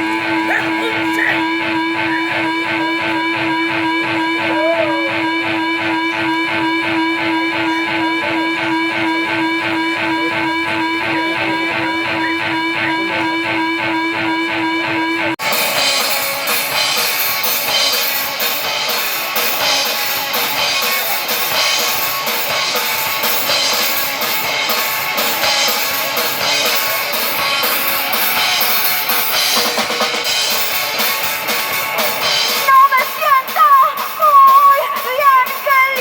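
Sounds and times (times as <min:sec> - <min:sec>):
rock band playing: 0:00.0 - 0:36.0
drum kit: 0:15.4 - 0:36.0.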